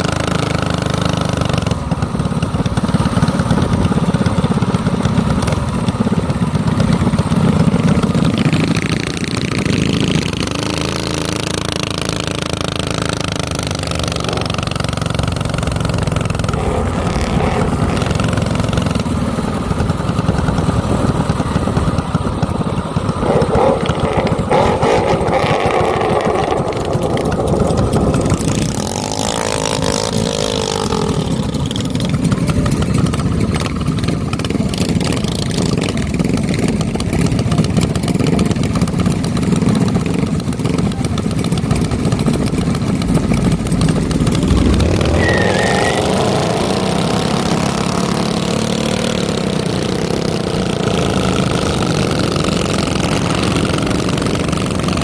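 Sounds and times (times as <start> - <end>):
minibike engine revving: 0.0 - 55.0.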